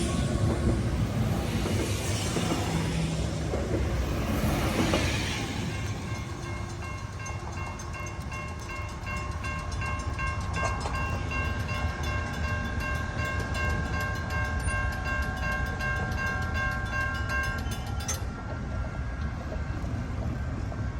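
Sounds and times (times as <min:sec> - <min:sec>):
passing train rumble: 0:00.0 - 0:20.9
railroad crossing bells ringing: 0:04.7 - 0:20.0.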